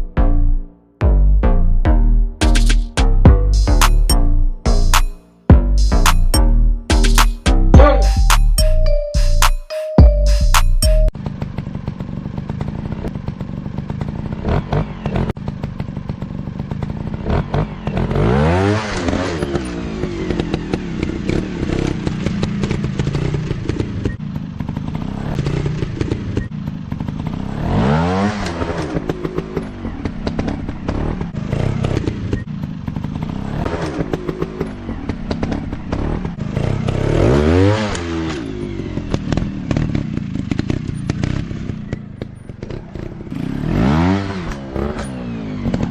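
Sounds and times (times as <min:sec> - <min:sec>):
motorcycle engines revving: 0:11.0 - 0:45.9.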